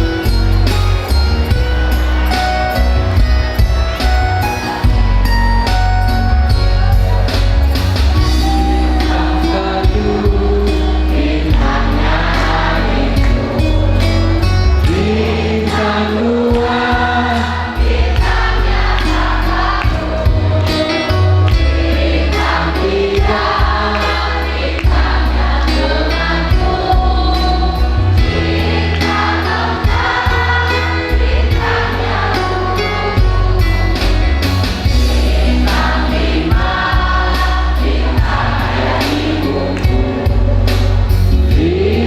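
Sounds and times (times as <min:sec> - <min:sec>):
instrumental accompaniment with beat: 0:00.0 - 0:42.0
choir singing in parts: 0:08.4 - 0:34.0, 0:34.9 - 0:42.0.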